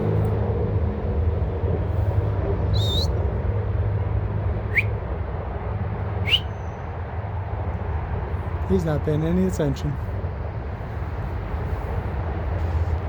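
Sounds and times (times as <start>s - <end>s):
low outdoor rumble: 0.0s - 13.0s
short rising bird chirps: 2.7s - 3.2s, 4.7s - 4.9s, 6.3s - 6.8s.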